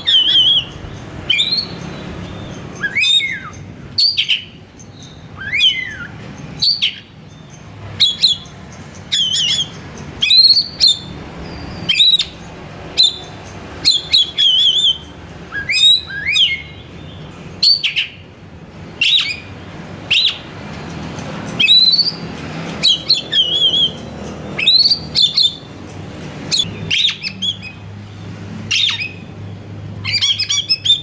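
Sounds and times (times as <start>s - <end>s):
bird singing whistled phrases: 0.0s - 7.1s, 8.0s - 8.5s, 9.1s - 12.4s, 13.0s - 18.2s, 19.0s - 19.5s, 20.1s - 20.5s, 21.6s - 22.2s, 22.8s - 24.0s, 24.6s - 25.7s, 26.5s - 27.8s, 28.7s - 29.2s, 30.0s - 31.0s.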